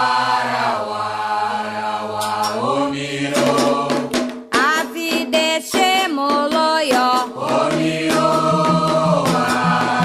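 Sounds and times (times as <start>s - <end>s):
voices singing a chant: 0.0s - 10.0s
sharp percussion strikes: 2.2s - 10.0s.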